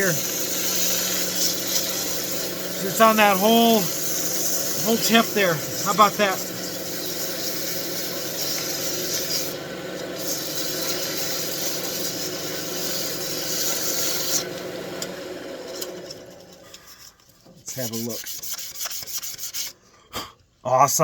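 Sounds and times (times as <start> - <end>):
tool scraping wood on lathe: 0.0 - 14.6, 15.6 - 19.8
lathe motor hum: 0.0 - 16.7.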